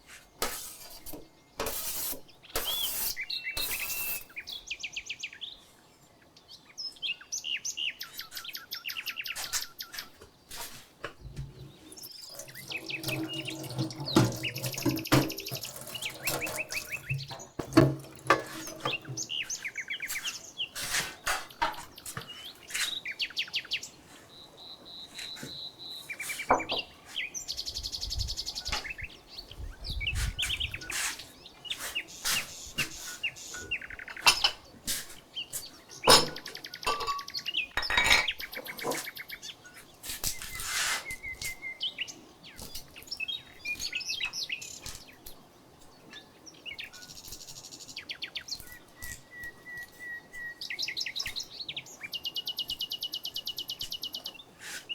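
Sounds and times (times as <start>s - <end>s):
songbirds trilling and chirping: 0.0s - 54.9s
cooking knocks and clicks: 11.0s - 19.4s.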